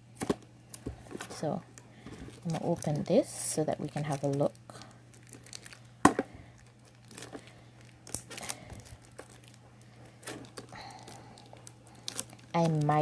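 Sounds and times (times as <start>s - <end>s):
packaging torn and crinkled: 3.8s - 5.9s, 6.5s - 13.0s.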